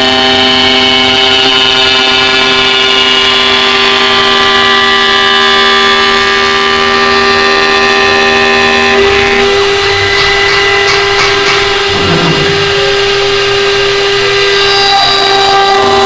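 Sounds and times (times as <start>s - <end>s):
wood-turning lathe hum and whine: 0.0s - 16.0s.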